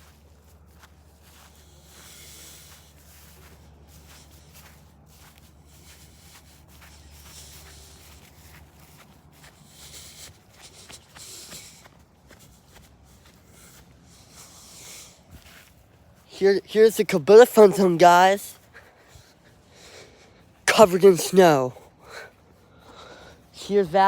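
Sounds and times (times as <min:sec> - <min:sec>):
faint footsteps: 0:00.0 - 0:16.3
steady low hum: 0:00.0 - 0:16.4.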